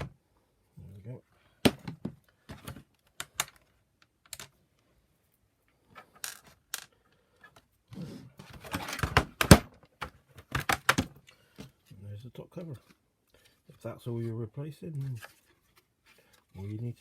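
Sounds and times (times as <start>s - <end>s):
plastic clattering: 8.4s - 11.8s.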